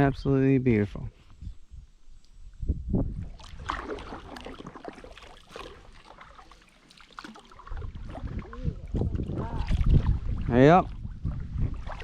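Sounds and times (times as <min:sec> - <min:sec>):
paddle splashing in water: 0:03.2 - 0:12.0.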